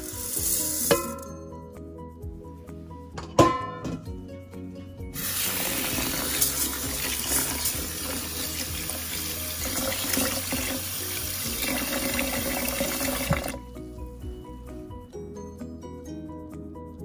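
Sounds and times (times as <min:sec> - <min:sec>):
tap water running into pot: 0:05.2 - 0:13.6.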